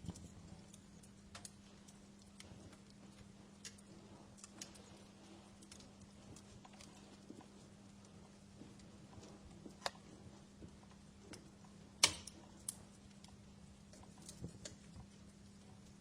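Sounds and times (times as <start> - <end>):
faint steady hum: 0.0 - 16.0
wood fire crackling: 0.0 - 16.0.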